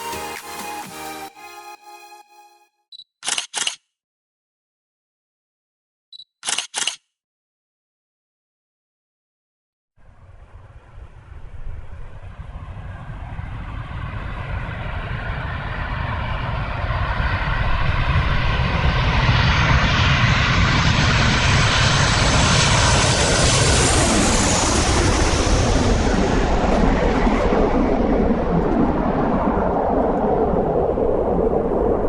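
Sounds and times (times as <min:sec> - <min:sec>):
aircraft engine drone: 0:10.0 - 0:32.0.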